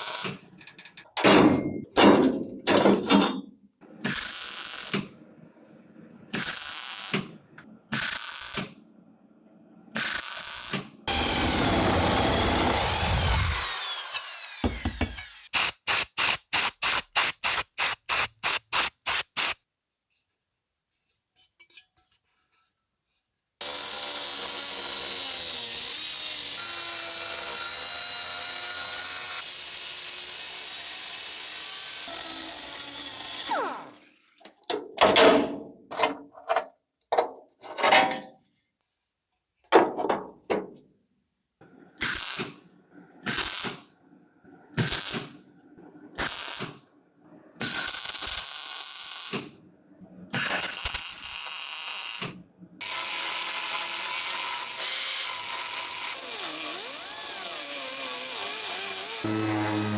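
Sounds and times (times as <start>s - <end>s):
workshop power tool running: 9.9s - 19.6s, 23.6s - 34.1s, 50.3s - 59.9s.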